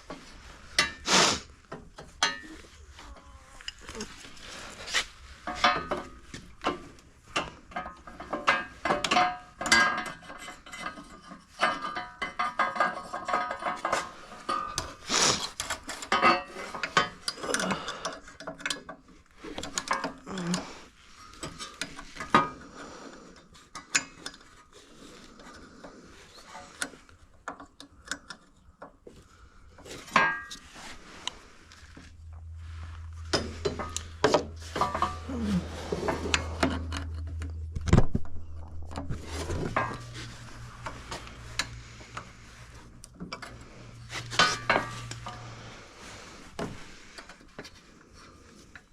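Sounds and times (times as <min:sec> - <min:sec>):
steady low hum: 0:29.3 - 0:48.6.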